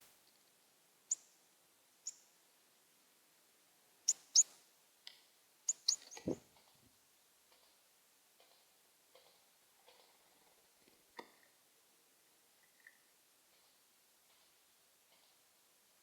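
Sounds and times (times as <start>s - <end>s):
bird chip calls: 4.1s - 4.5s, 5.7s - 6.4s.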